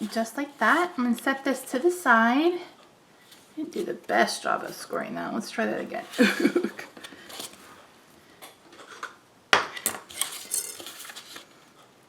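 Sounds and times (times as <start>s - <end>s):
paper handling: 10.2s - 11.6s.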